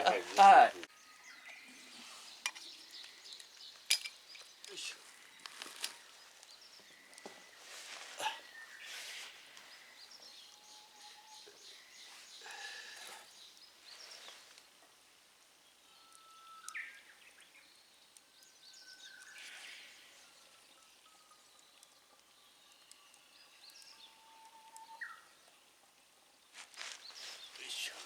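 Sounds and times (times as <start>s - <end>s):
rustling handling noises: 3.4s - 9.9s, 26.5s - 28.0s.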